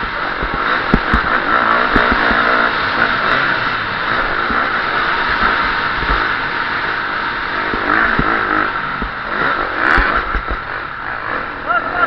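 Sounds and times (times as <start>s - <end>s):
motocross bike engine revving: 0.0s - 12.0s
steady rushing noise: 0.0s - 12.0s
low thumps: 7.7s - 10.7s.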